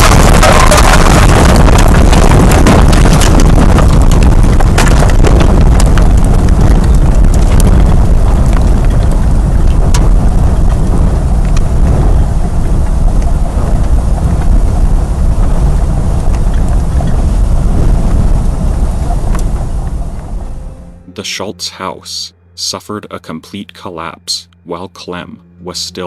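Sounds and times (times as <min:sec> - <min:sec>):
debris cracking and banging: 0:00.0 - 0:20.6
tornado wind rushing: 0:00.0 - 0:20.9.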